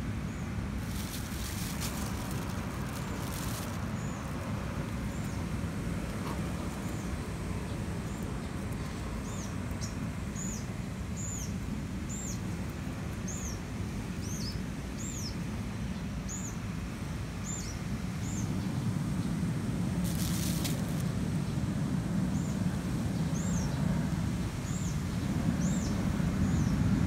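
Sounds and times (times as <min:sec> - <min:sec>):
small bird chirping: 0:00.3 - 0:05.5.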